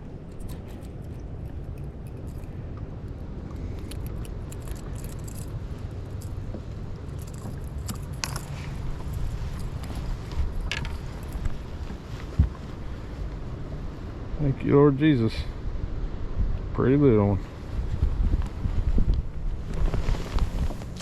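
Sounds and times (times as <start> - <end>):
wind buffeting microphone: 0.0 - 21.0
fishing tackle clicks and rattles: 0.2 - 6.4, 7.1 - 11.6.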